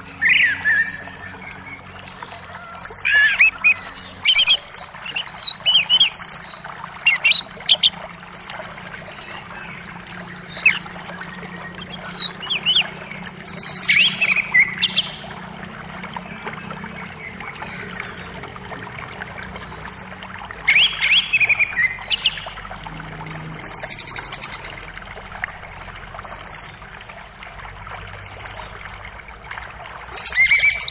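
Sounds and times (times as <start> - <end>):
bird trill: 0.0 - 9.3, 10.1 - 15.3, 19.7 - 22.6, 30.2 - 30.9
songbirds chirping: 0.0 - 27.4
flowing creek water: 0.0 - 30.9.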